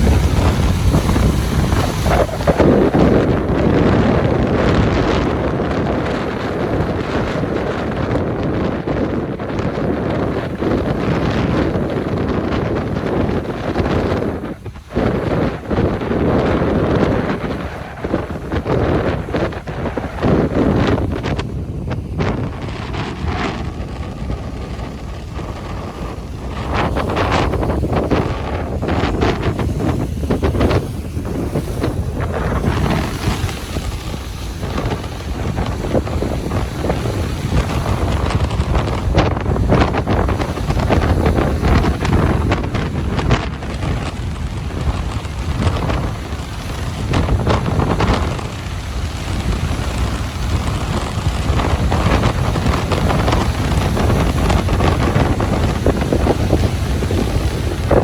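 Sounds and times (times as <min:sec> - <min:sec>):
ocean surf on a beach: 0:00.0 - 0:58.0
wind buffeting microphone: 0:00.0 - 0:58.0.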